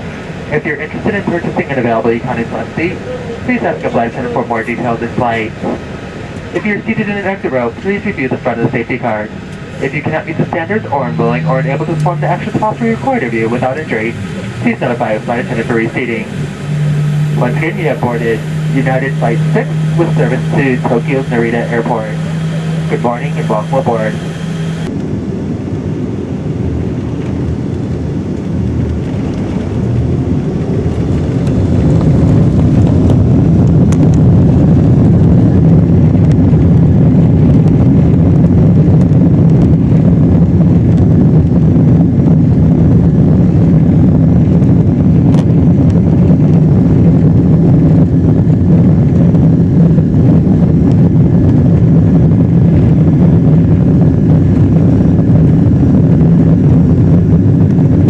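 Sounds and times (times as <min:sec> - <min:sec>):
jet engines spooling up: 0:00.0 - 0:35.0.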